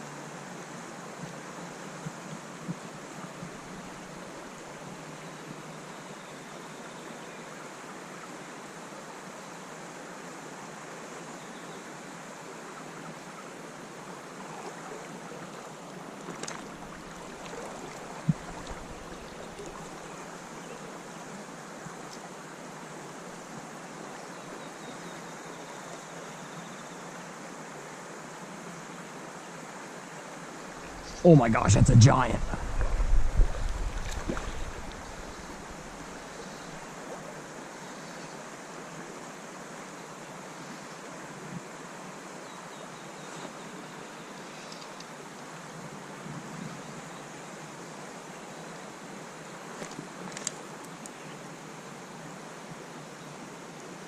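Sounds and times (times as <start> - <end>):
creek water flowing: 0.0 - 5.9, 12.3 - 26.2, 27.2 - 42.4.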